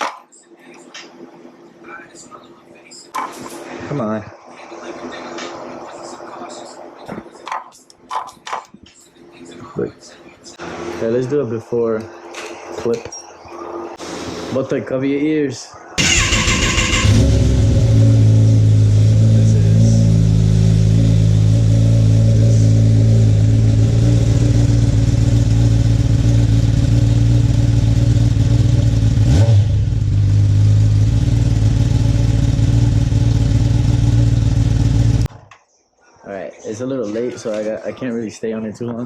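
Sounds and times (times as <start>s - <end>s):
motorcycle engine starting and idling: 16.0s - 35.3s.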